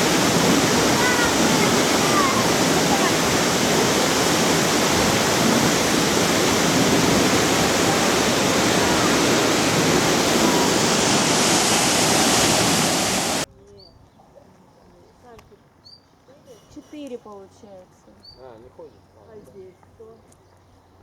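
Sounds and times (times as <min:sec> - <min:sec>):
waterfall rushing: 0:00.0 - 0:13.5.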